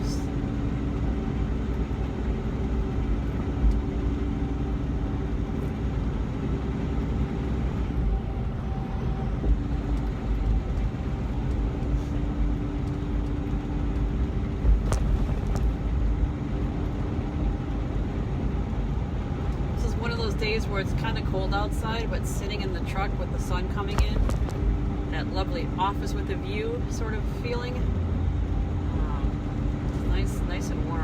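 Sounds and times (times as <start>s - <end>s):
road noise: 0.0s - 31.0s
truck engine drone: 0.0s - 31.0s.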